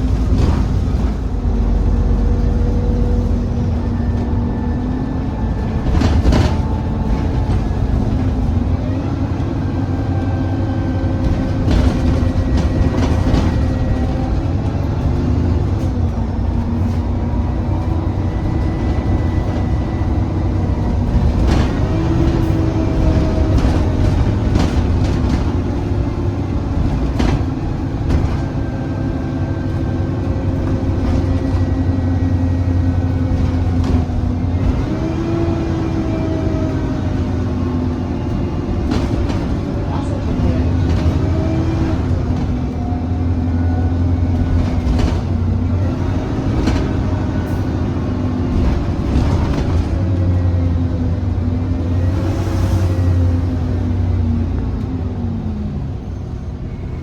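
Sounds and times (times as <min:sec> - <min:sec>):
bus engine changing gear: 0:00.0 - 0:57.0
knocks and rattles: 0:11.1 - 0:19.6, 0:20.8 - 0:28.9.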